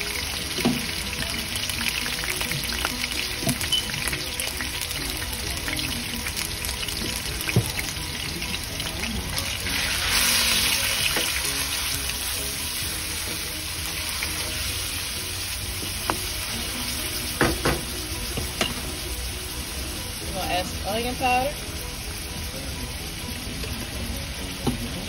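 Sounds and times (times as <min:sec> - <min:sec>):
chicken sizzling in hot oil: 0:00.0 - 0:25.0.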